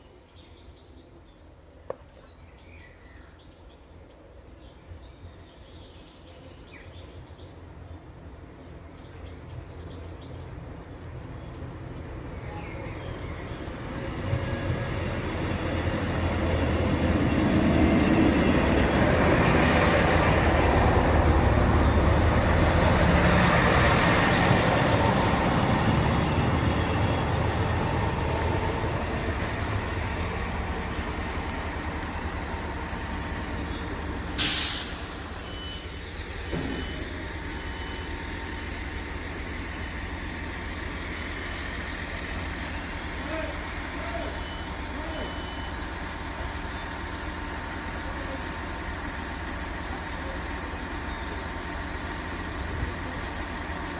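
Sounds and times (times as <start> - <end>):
train rumble: 7.2 - 53.9
air hiss: 30.8 - 31.9, 34.3 - 35.5
high beeps: 44.4 - 45.8.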